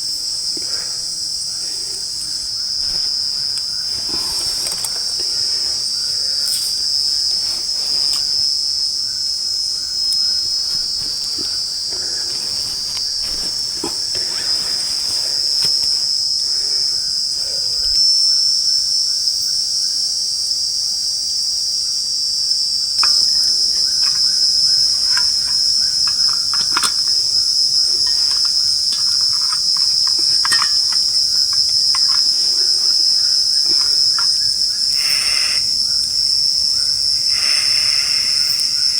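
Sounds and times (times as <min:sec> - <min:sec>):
crickets and insects shrilling: 0:00.0 - 0:19.5, 0:22.8 - 0:38.9
faint clicks: 0:23.0 - 0:36.2, 0:37.1 - 0:38.9.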